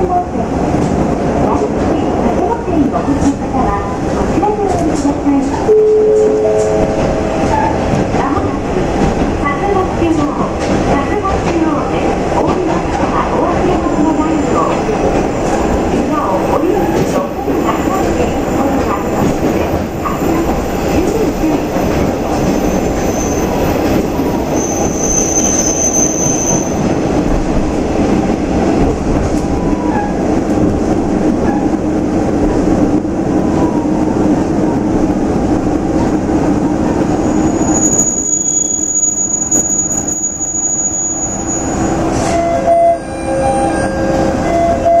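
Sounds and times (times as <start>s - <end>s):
railcar engine and rolling rumble: 0.0s - 45.0s
steady tones: 4.3s - 12.2s
high wheel squeals: 24.6s - 26.8s, 37.3s - 45.0s.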